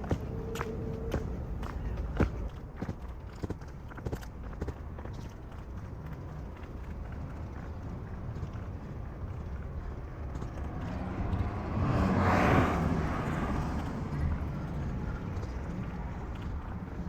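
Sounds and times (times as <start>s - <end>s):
city street traffic: 0.0s - 17.0s
car passing close by: 10.6s - 15.0s.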